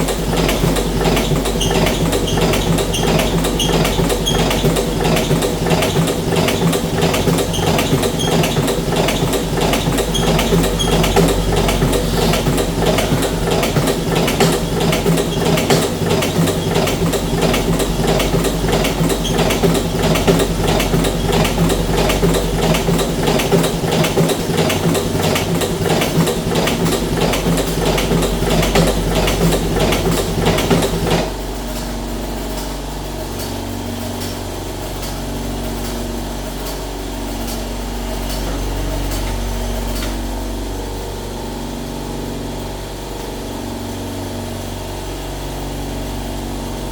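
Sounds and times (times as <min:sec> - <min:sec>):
motor hum: 0:00.0 - 0:46.9
rapid mechanical clicking: 0:00.0 - 0:46.9.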